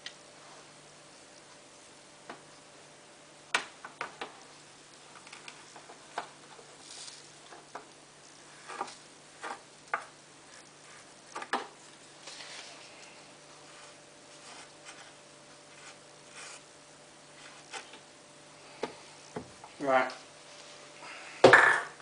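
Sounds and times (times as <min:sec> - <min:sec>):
faint rustling: 0:10.4 - 0:16.7.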